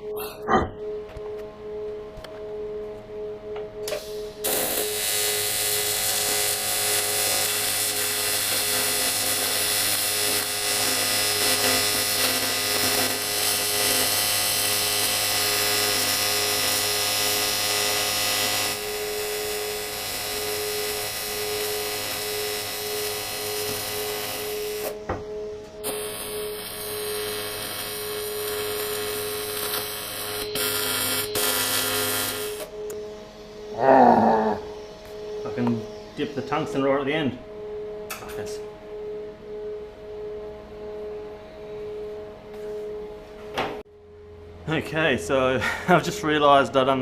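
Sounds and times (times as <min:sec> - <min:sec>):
welding arc buzzing hiss: 0:03.8 - 0:25.0, 0:25.8 - 0:32.7.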